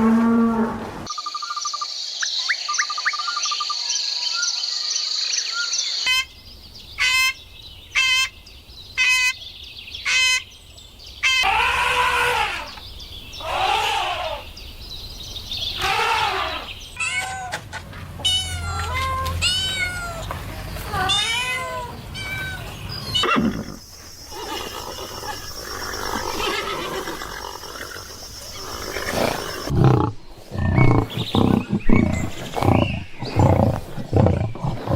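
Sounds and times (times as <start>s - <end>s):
animal trilling: 13.4s - 14.5s, 21.0s - 34.9s
drawn-out rising and falling calls: 18.2s - 29.7s.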